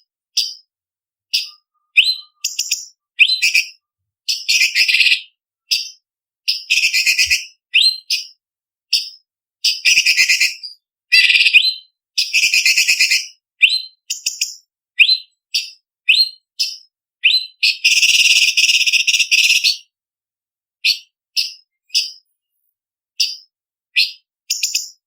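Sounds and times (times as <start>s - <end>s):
bird whistling upward notes: 1.4s - 3.8s, 17.2s - 17.7s.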